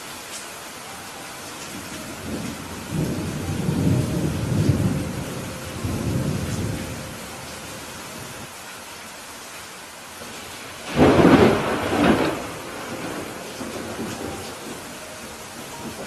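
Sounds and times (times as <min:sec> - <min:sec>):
steady rain falling: 0:00.0 - 0:16.0
low rumble of thunder: 0:01.7 - 0:08.5, 0:10.8 - 0:16.0.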